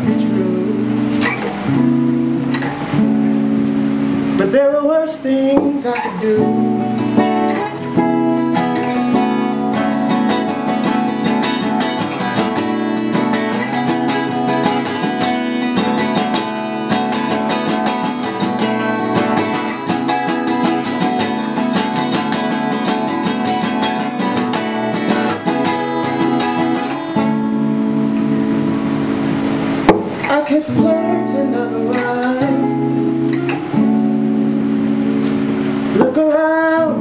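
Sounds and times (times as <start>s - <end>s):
guitar strumming: 0.0s - 37.0s.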